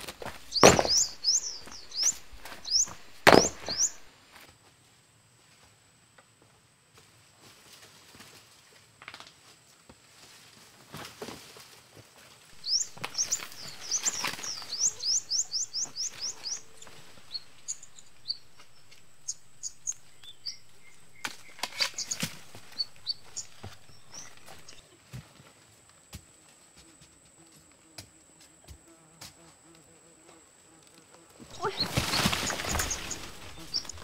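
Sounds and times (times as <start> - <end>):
bird chirping: 0.0 - 4.1, 12.6 - 24.8, 31.5 - 34.0
rustling through undergrowth: 0.0 - 4.5, 7.2 - 25.9, 30.7 - 34.0.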